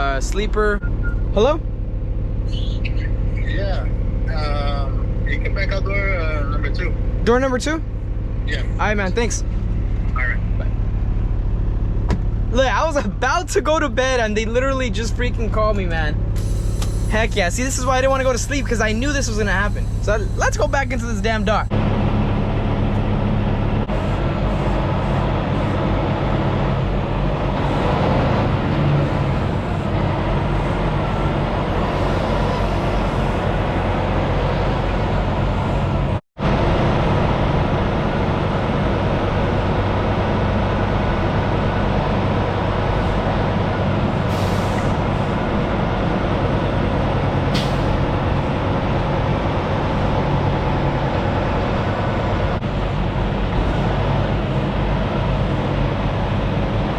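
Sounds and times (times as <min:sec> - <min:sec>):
diesel truck engine running: 0:00.0 - 0:56.9
air hissing: 0:16.4 - 0:17.4, 0:44.3 - 0:45.0.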